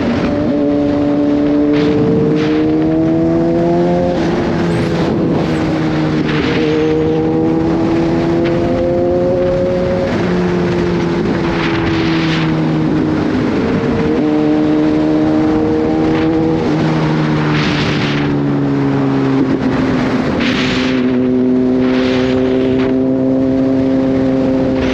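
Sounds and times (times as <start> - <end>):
motorcycle engine accelerating: 0.0 - 24.9
bursts of rushing noise: 19.4 - 22.9.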